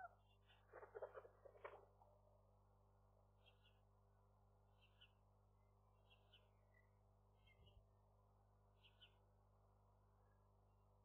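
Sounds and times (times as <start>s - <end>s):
faint high bird chirps: 0.0s - 0.6s, 3.4s - 3.8s, 8.8s - 9.2s.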